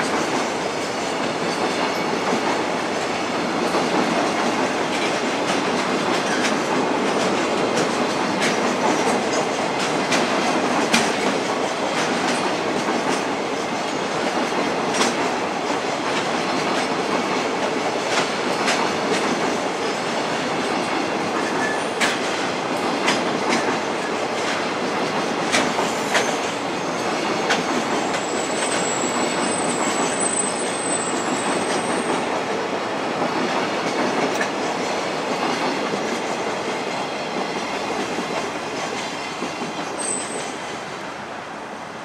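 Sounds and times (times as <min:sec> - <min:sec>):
train wheels clacking on bridge: 0:00.0 - 0:41.3
high wheel squeal: 0:28.2 - 0:32.2, 0:39.9 - 0:40.6.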